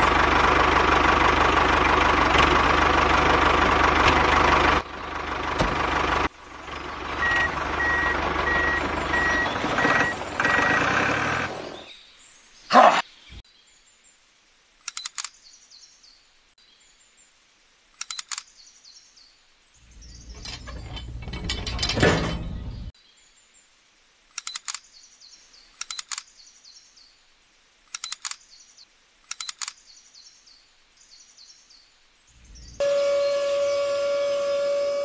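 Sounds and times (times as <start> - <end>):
small plastic parts clicking: 27.9 - 28.4, 29.2 - 29.8.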